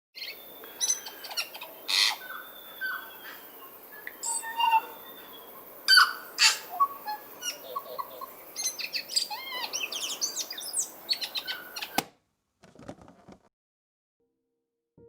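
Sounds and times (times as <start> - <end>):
birds chirping and singing: 0.2 - 12.0.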